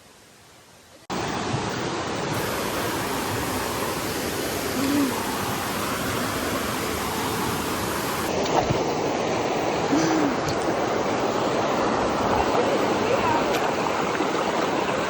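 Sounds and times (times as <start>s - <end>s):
steady rushing noise: 1.1s - 15.0s.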